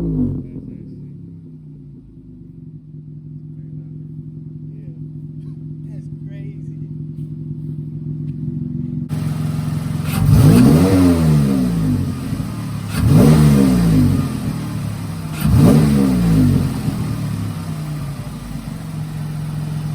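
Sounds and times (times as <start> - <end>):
car engine idling and revving: 0.0 - 19.9.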